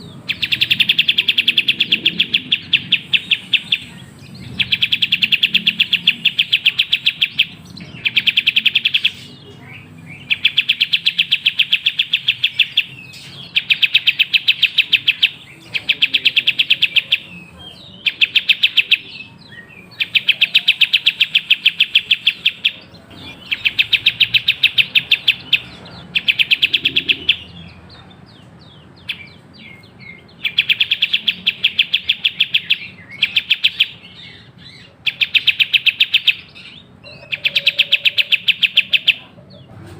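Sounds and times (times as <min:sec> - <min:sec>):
bird chattering trilled chirps: 0:00.0 - 0:39.7.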